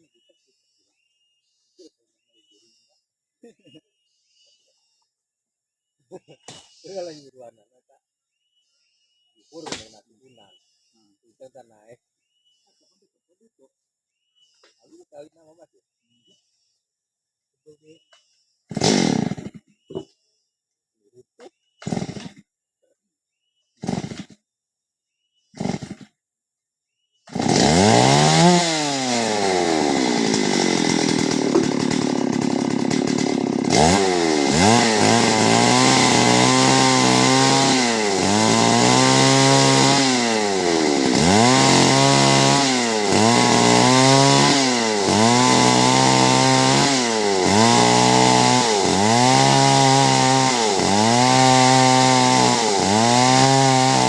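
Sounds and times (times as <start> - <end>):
chainsaw engine revving: 18.7 - 20.1, 21.8 - 22.5, 23.8 - 24.4, 25.5 - 26.2, 27.2 - 54.0.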